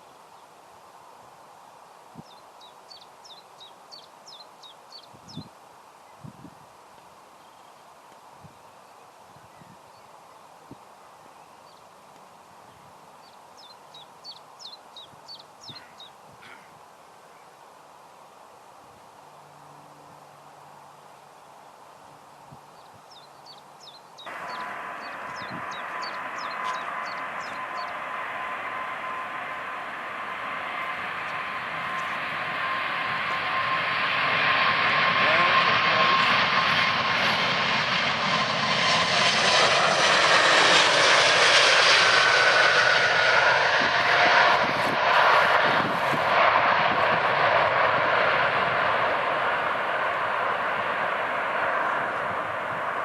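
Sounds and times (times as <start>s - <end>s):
steady outdoor hiss: 0.0s - 53.0s
small bird chirping: 2.2s - 5.5s, 12.7s - 16.6s, 22.7s - 28.0s
jet engine rush with whine: 18.9s - 53.0s.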